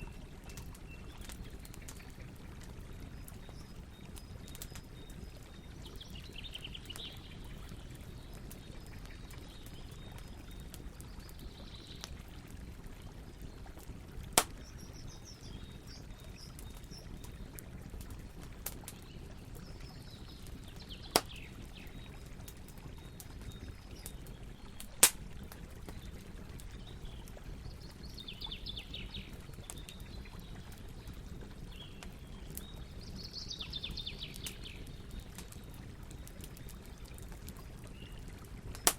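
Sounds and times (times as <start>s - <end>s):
campfire crackling: 0.0s - 38.9s
loud sharp pops of fire: 14.4s - 14.7s, 21.1s - 21.5s, 25.0s - 25.3s.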